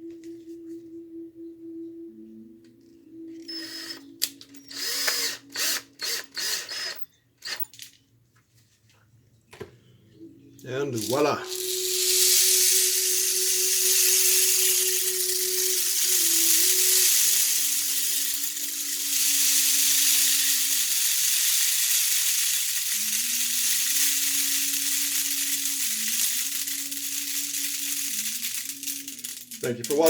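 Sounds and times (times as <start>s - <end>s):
rain stick hiss: 11.0s - 30.0s.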